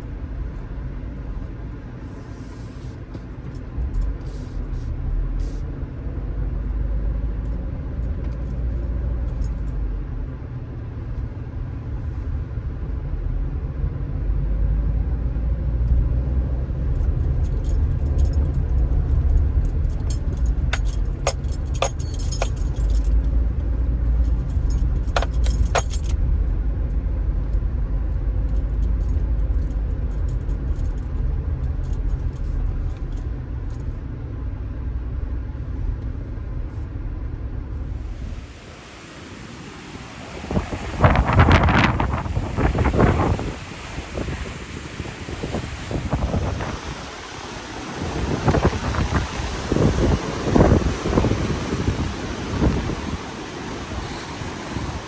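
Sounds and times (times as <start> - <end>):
ocean waves breaking: 38.3 - 55.0
wind buffeting microphone: 40.1 - 55.0.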